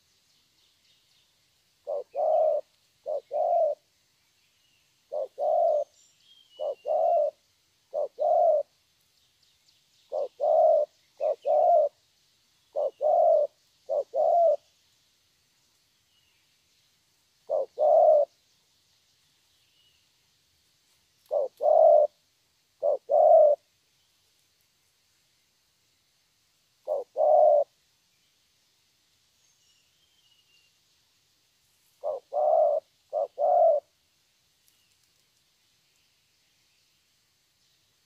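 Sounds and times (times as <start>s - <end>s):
small birds chirping: 0.0s - 22.2s, 22.8s - 26.2s, 26.8s - 38.0s
dove cooing: 1.8s - 3.8s, 5.1s - 5.9s, 6.6s - 8.7s, 10.1s - 12.0s, 12.7s - 14.7s, 17.4s - 18.3s, 21.2s - 22.2s, 22.8s - 23.7s, 26.8s - 27.7s, 32.0s - 34.0s.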